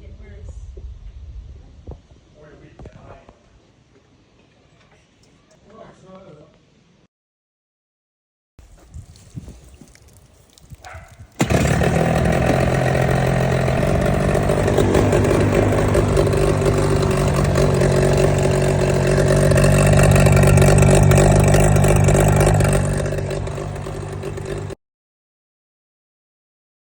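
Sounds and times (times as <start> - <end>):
outboard motor running: 10.9 - 24.8.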